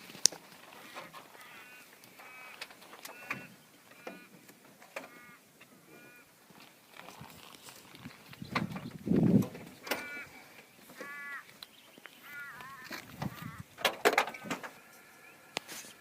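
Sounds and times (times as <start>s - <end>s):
bird honk-like calls: 0.9s - 4.4s, 5.0s - 6.3s, 9.8s - 13.8s.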